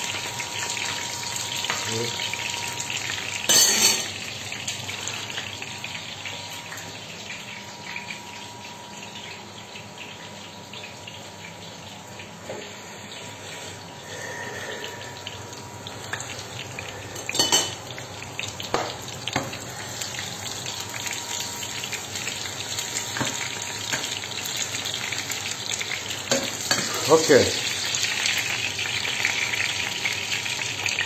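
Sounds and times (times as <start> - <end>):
vegetables frying in hot oil: 0.0 - 31.0.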